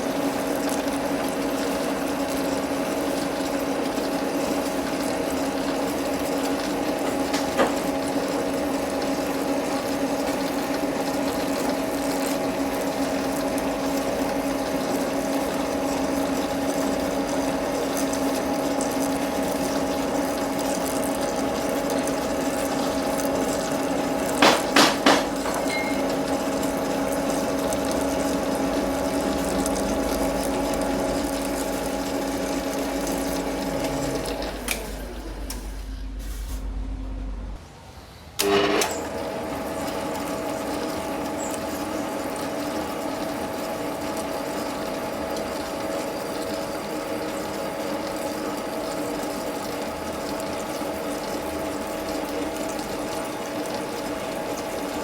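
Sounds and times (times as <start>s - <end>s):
metal lathe humming: 19.4s - 36.2s.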